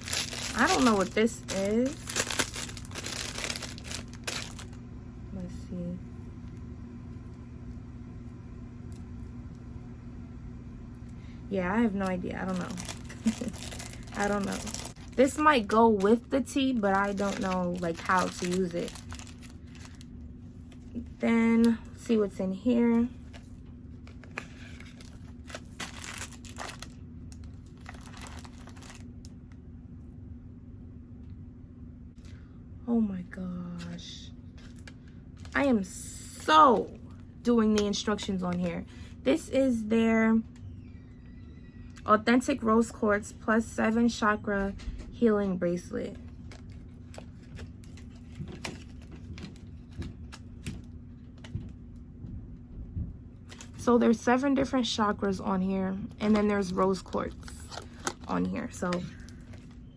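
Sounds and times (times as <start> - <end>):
packaging crinkling and rustling: 0.0 - 4.8, 11.7 - 21.0, 23.2 - 29.5, 34.4 - 35.7, 46.2 - 52.0, 53.4 - 53.8, 56.1 - 59.9.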